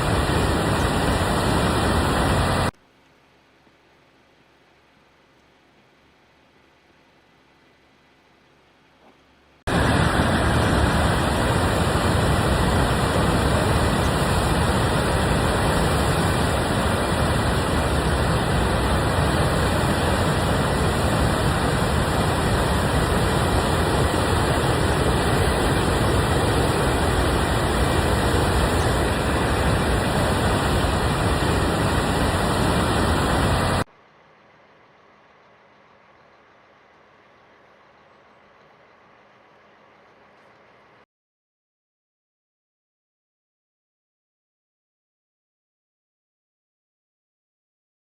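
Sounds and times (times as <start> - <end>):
river rushing over waterfall: 0.0 - 2.7, 9.7 - 33.8.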